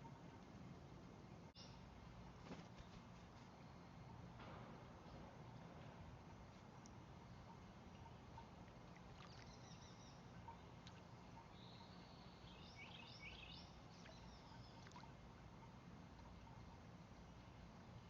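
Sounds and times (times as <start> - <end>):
low outdoor rumble: 0.0 - 18.0
songbird chirping: 6.4 - 18.0.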